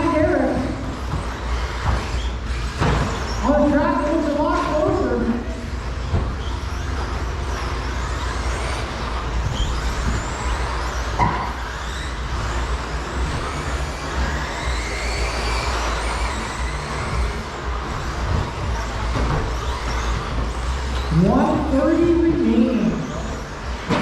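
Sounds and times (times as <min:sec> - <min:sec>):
rc truck motors whining: 0:00.0 - 0:24.0
steady rumble: 0:00.0 - 0:24.0.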